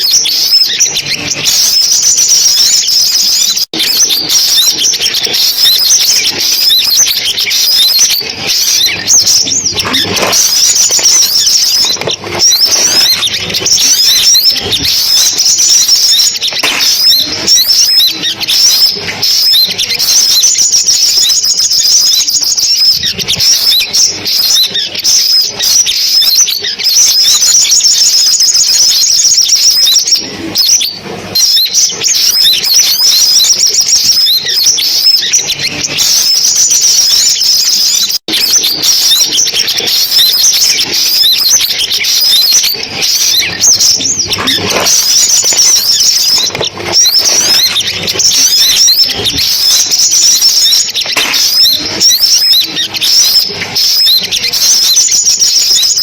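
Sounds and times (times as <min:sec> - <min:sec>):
birds chirping and trilling: 0:00.0 - 0:56.0.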